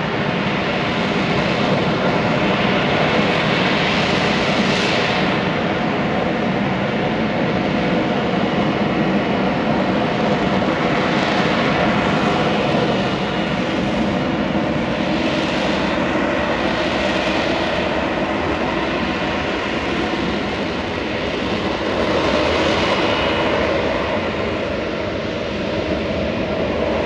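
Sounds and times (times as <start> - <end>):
jet engine roar: 0.0 - 27.0.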